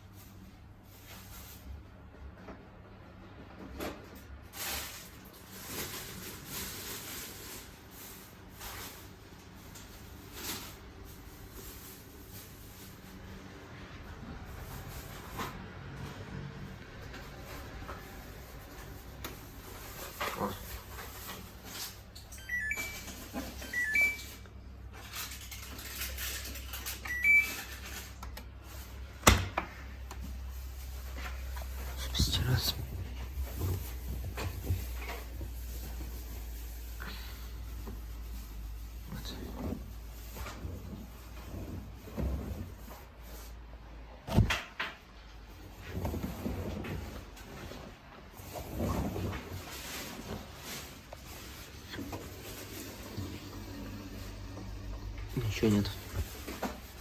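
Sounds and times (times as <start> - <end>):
washing machine panel beeping: 22.3 - 24.4, 27.0 - 27.7
water swishing in washing machine: 38.0 - 43.7, 45.6 - 57.0.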